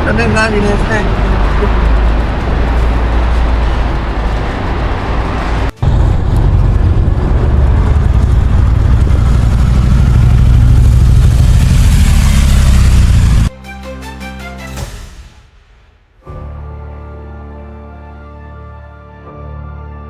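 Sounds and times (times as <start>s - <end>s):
motorcycle engine rumble: 0.0s - 13.5s
loud rushing noise: 0.0s - 13.6s.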